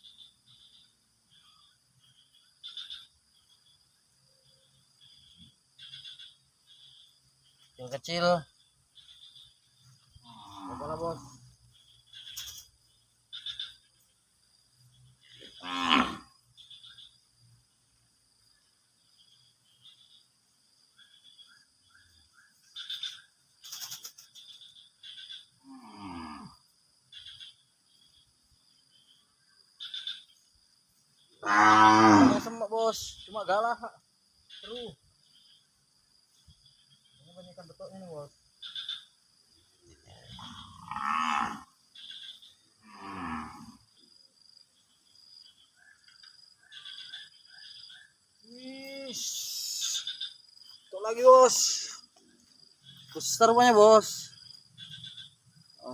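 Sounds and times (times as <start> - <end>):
insects or frogs chirping: 0.0 - 55.9
distant cow mooing: 10.2 - 11.4, 15.5 - 16.4, 25.6 - 26.6, 31.4 - 32.6, 40.1 - 41.8, 42.8 - 43.8.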